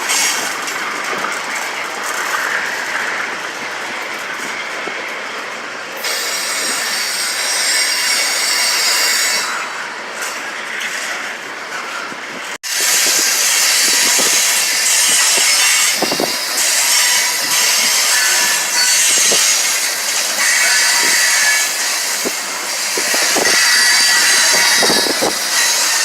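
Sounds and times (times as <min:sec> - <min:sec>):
freight train cars rolling past: 0:00.0 - 0:26.0
wheels clacking over rail joints: 0:00.0 - 0:26.0
steel wheels squealing: 0:06.0 - 0:11.2, 0:12.7 - 0:26.0.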